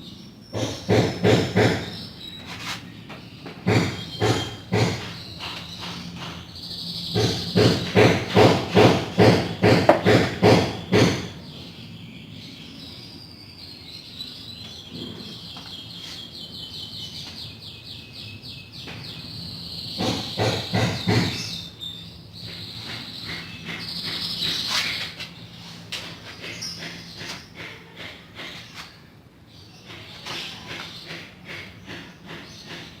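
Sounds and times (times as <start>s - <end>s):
hand rubbing on wood: 2.4s - 3.0s, 24.4s - 29.0s.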